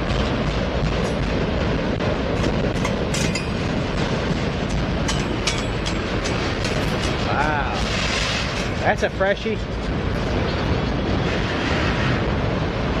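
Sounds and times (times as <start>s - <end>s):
train wheels rumbling on rail: 0.0s - 13.0s
wheels clacking over rail joints: 2.3s - 9.2s.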